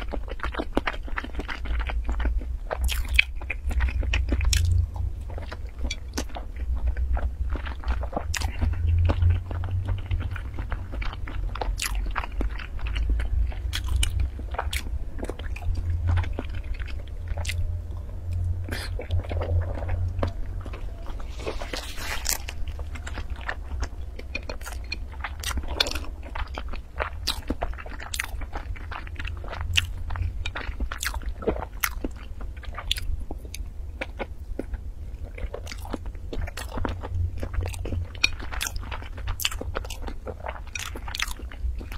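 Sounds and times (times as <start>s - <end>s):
person chewing: 0.0s - 41.9s
noisy suck: 17.5s - 24.1s.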